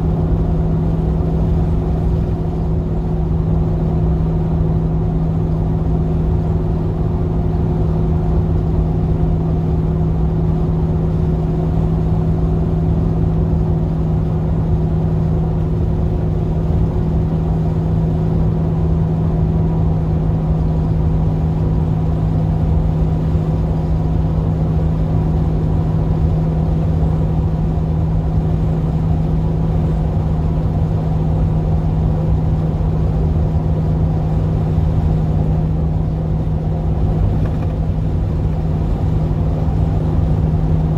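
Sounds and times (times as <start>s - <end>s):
low road rumble: 0.0s - 40.9s
van engine running: 0.0s - 40.9s.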